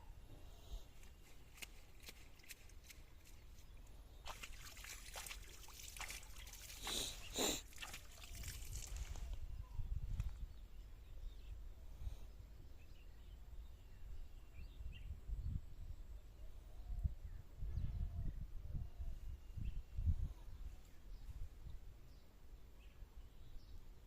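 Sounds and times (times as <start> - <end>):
water sloshing and trickling: 1.3 - 9.4
water splashes: 1.6 - 9.4.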